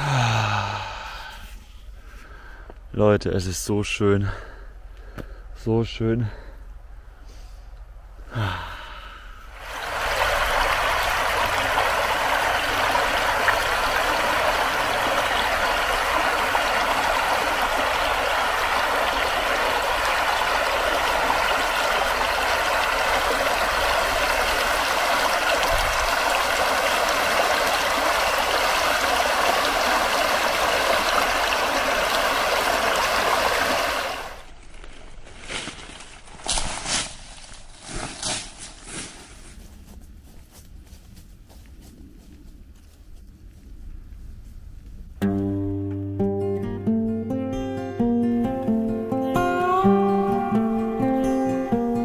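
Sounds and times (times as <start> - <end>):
stream water flowing: 9.5 - 34.9.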